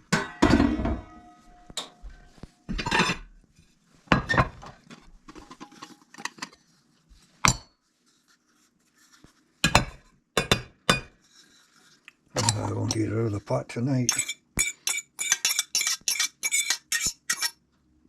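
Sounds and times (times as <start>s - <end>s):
metal utensils clanking on pot: 14.1s - 17.5s.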